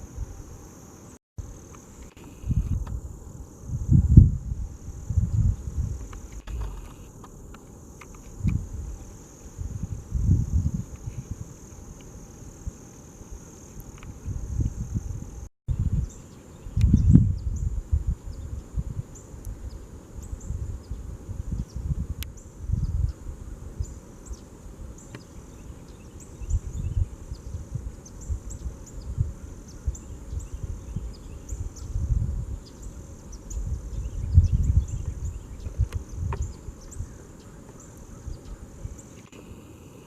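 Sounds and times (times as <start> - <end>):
high-pitched insect chorus: 0.0 - 40.0
wind buffeting microphone: 2.2 - 39.6.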